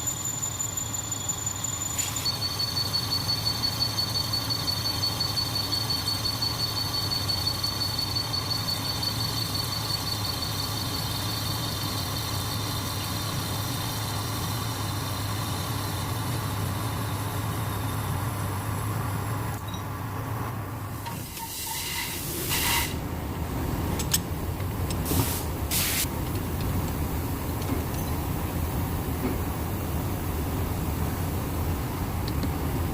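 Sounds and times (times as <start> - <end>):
short hissing bursts: 25.0 - 26.1.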